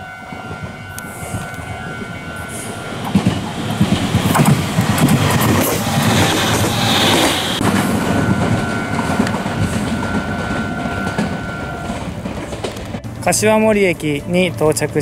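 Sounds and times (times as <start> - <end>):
electric train running past: 0.0 - 15.0
steady high tone: 0.0 - 15.0.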